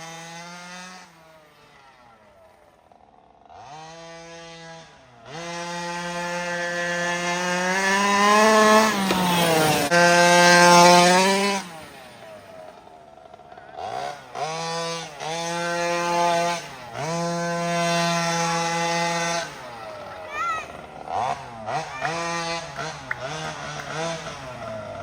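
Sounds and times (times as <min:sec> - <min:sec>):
two-stroke engine revving: 0:00.0 - 0:25.0.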